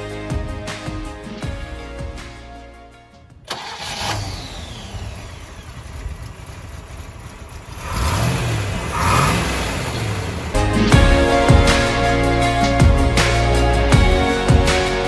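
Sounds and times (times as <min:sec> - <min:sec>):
car engine starting and idling: 0:03.1 - 0:14.5.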